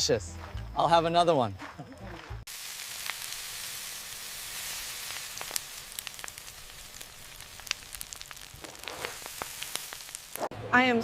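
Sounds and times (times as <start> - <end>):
food sizzling in hot oil: 2.5 - 10.5
oil crackling and popping: 2.5 - 10.5.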